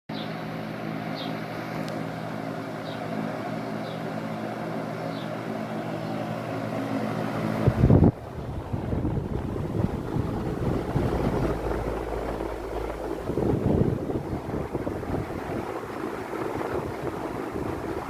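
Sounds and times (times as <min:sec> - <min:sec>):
electric fan humming: 0:00.1 - 0:18.0
wind buffeting microphone: 0:07.5 - 0:18.0.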